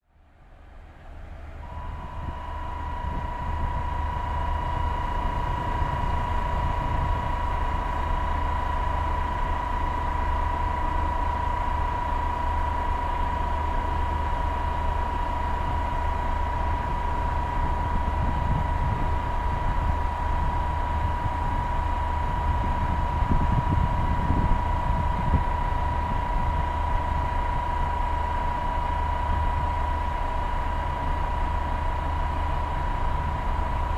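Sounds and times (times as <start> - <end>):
diesel railcar engine rumble: 0.1 - 33.9.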